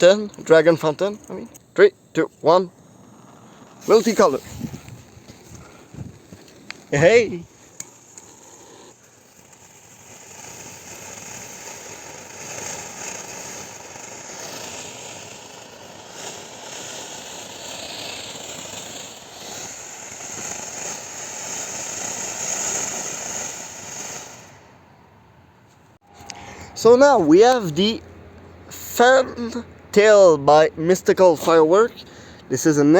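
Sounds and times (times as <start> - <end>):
firework fountain hissing: 0.0 - 25.0.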